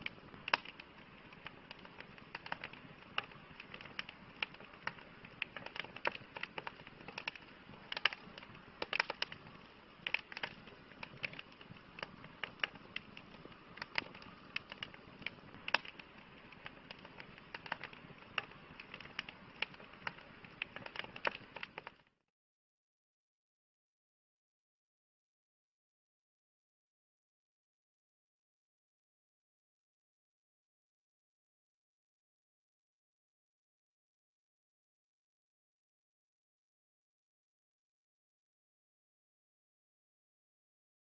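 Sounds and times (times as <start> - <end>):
soft steady hiss: 0.0 - 22.1
campfire crackling and popping: 0.0 - 22.2.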